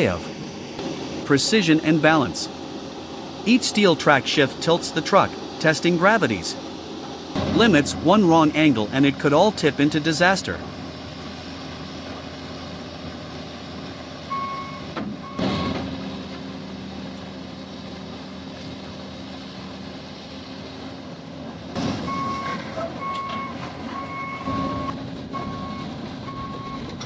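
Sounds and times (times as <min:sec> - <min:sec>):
diesel engine running: 0:00.0 - 0:27.0
heavy steel clanks: 0:07.0 - 0:12.2
reversing alarm beeps: 0:14.3 - 0:15.9, 0:22.1 - 0:26.9.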